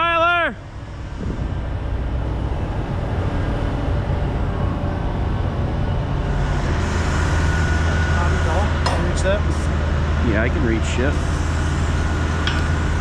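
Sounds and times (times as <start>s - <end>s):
crane diesel engine humming: 0.0s - 13.0s.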